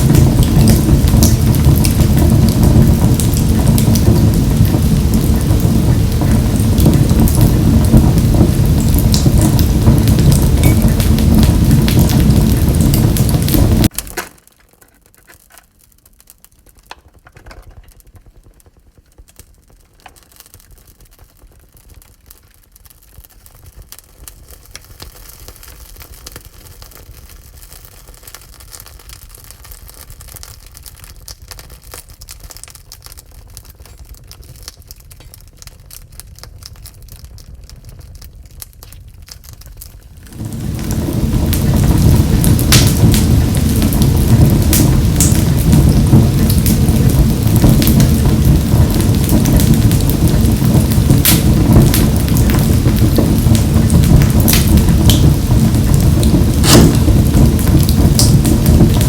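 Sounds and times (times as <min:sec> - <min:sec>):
low fire rumble: 0:00.0 - 0:59.0
wood fire crackling: 0:00.0 - 0:59.0
loud rushing noise: 0:40.3 - 0:47.5, 0:54.4 - 0:59.0.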